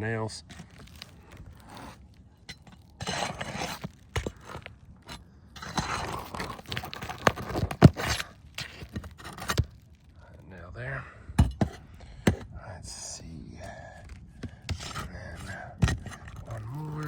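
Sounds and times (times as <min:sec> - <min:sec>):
roof shingles scraping and crunching: 0:00.3 - 0:10.3, 0:14.6 - 0:17.0.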